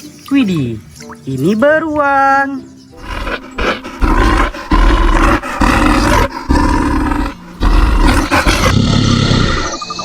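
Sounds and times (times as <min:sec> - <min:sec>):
bear roaring: 0:03.0 - 0:09.8.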